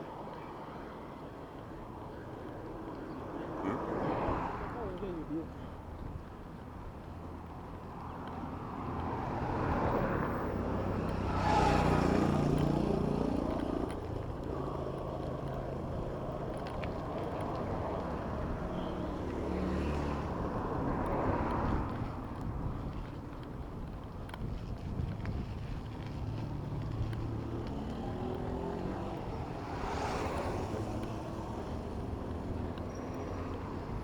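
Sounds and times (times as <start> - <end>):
traffic rumble: 0.0 - 34.0
vehicles passing close by: 0.0 - 34.0.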